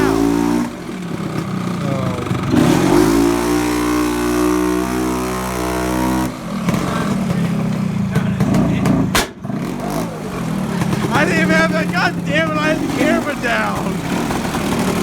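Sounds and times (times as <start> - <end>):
engine revving: 0.0 - 15.0
sharp knock: 9.1 - 9.4.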